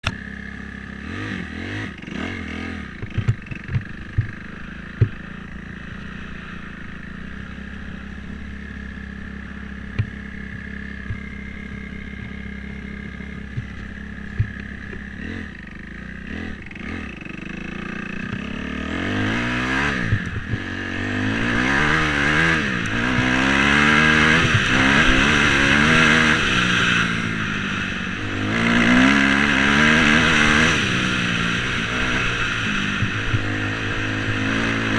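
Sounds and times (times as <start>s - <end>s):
dirt bike engine idling and revving: 0.0s - 34.9s
sharp clicks and knocks: 3.0s - 5.5s, 9.8s - 15.3s, 18.0s - 18.6s, 19.8s - 20.8s, 32.8s - 34.7s.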